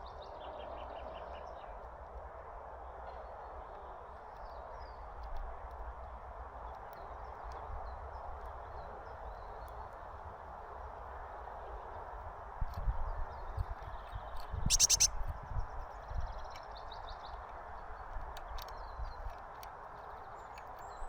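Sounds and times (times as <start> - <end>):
faint bird chirps: 14.6 - 15.1
birds pecking ticks: 14.7 - 15.1
outdoor background hiss: 14.7 - 15.1.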